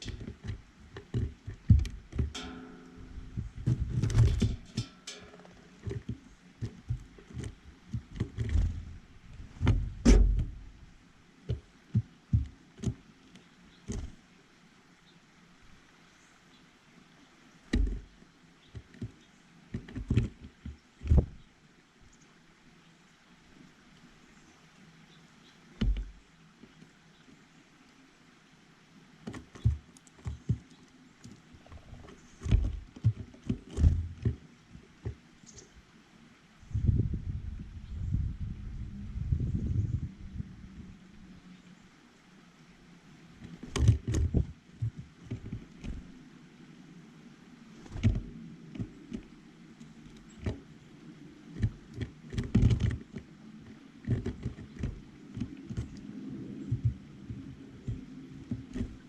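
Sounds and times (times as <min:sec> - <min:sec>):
knocks and taps on bird feeder: 0:00.0 - 0:08.8, 0:17.7 - 0:18.1, 0:18.7 - 0:21.4, 0:25.8 - 0:26.2, 0:31.7 - 0:34.4, 0:47.9 - 0:49.3
birds pecking on a feeder: 0:00.0 - 0:14.2, 0:17.6 - 0:21.5, 0:25.1 - 0:27.3, 0:29.1 - 0:35.7, 0:43.3 - 0:59.0.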